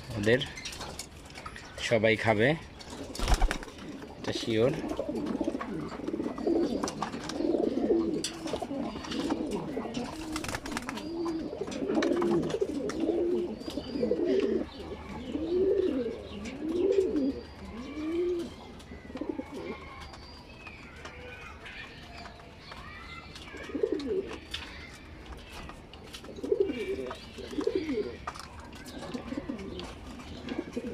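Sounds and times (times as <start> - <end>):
pigeons cooing: 2.9 - 20.1, 23.5 - 24.4, 26.1 - 30.9.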